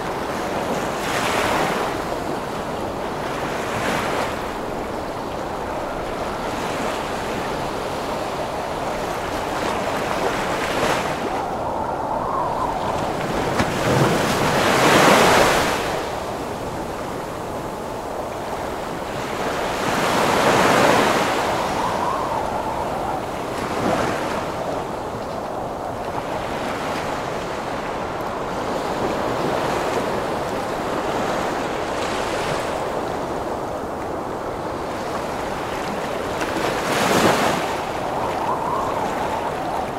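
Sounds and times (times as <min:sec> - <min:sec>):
ocean waves crashing: 0:00.0 - 0:39.9
wind howling: 0:00.0 - 0:39.9.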